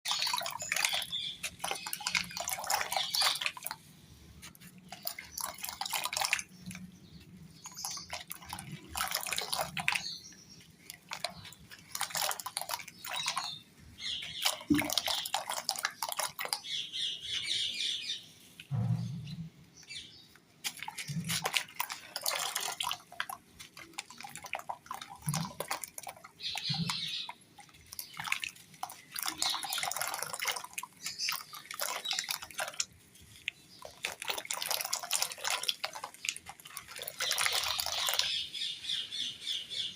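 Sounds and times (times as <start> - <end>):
water dripping and splashing: 0.0 - 17.2, 20.3 - 38.7
soft low thuds: 18.7 - 19.6.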